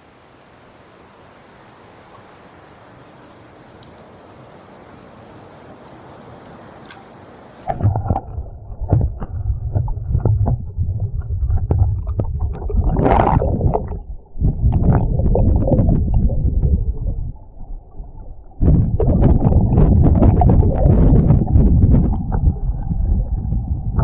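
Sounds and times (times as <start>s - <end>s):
muffled underwater water rumble: 7.6s - 24.0s
underwater clicks and knocks: 7.7s - 17.4s, 18.5s - 24.0s.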